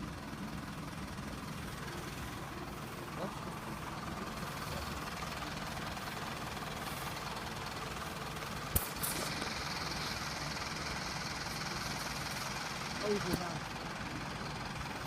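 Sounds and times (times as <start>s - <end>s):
diesel train idling: 0.0s - 15.0s.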